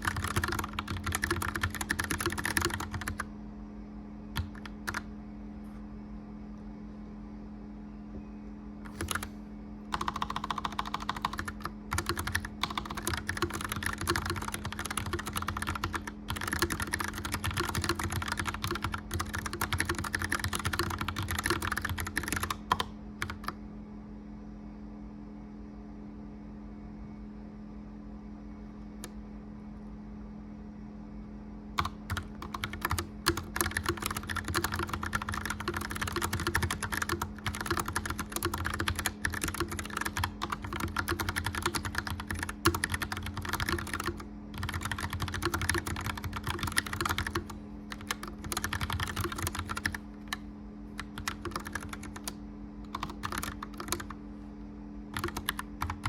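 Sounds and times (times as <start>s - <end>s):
mechanical keyboard typing: 0.0s - 3.3s, 4.4s - 5.1s, 8.9s - 9.3s, 9.9s - 23.6s, 31.8s - 50.4s, 51.0s - 54.2s, 55.1s - 56.0s
fireplace fan hum: 0.0s - 56.0s.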